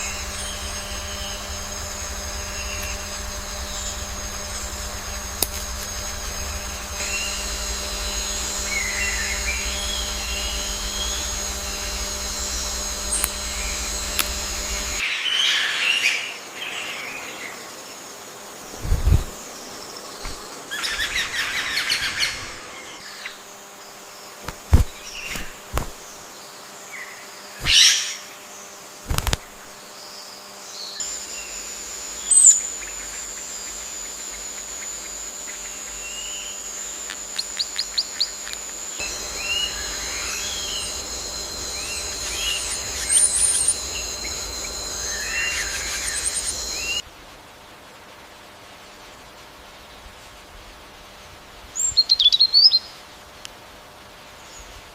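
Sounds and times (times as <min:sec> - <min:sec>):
high-pitched insect drone: 0:00.0 - 0:15.0, 0:16.4 - 0:47.0
bird chirps and calls: 0:35.5 - 0:47.0.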